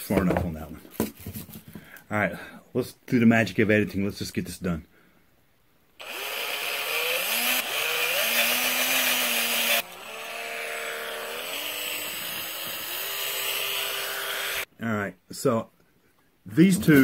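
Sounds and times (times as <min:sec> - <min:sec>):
electric drill boring: 0:06.0 - 0:14.7.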